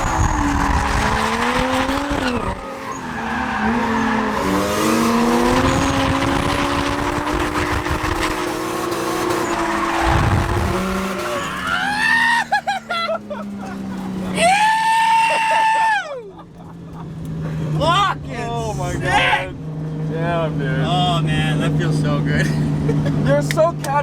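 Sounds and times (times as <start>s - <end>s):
car engine revving: 0.0s - 14.8s
tyres skidding and squealing: 0.0s - 24.0s.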